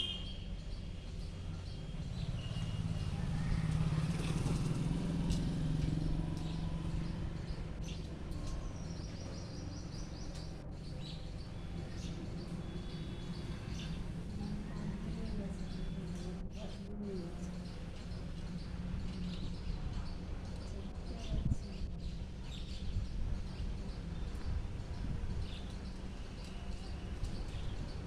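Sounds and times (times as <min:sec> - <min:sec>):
birds chirping: 0:00.0 - 0:01.0
low engine rumble: 0:00.0 - 0:25.5.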